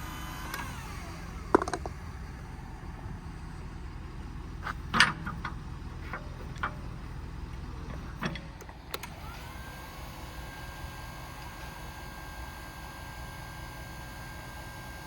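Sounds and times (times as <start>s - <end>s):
electric motor whine: 0.0s - 2.5s, 8.9s - 15.0s
low steady rumble: 0.6s - 13.1s
sharp clicks and clunks: 1.5s - 2.0s, 4.6s - 6.9s, 7.5s - 9.4s.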